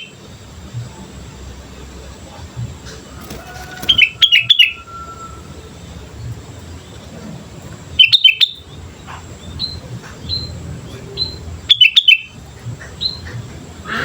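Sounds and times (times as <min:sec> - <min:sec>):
bulbul chirping: 0:02.8 - 0:06.9, 0:07.9 - 0:13.5.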